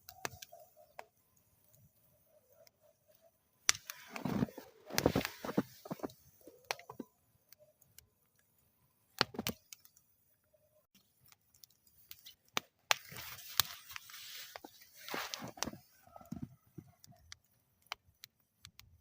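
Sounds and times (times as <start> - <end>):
wood fire crackling and popping: 0.0 - 10.2, 10.8 - 19.0
fire hissing: 3.0 - 7.1, 11.9 - 18.4.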